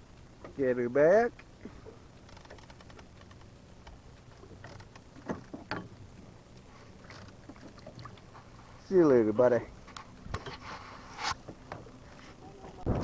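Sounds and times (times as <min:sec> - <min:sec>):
boat motor humming: 0:00.0 - 0:13.0
small mechanical clicks: 0:02.2 - 0:04.0.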